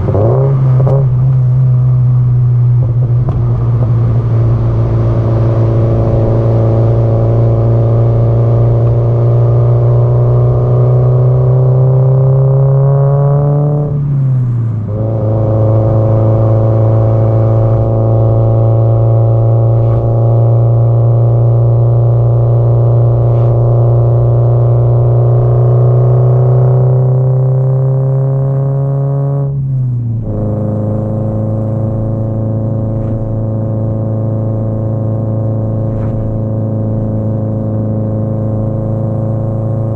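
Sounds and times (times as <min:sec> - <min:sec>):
engine pitch dropping on upshift: 0:00.0 - 0:11.0
car exhaust under acceleration: 0:00.0 - 0:39.9.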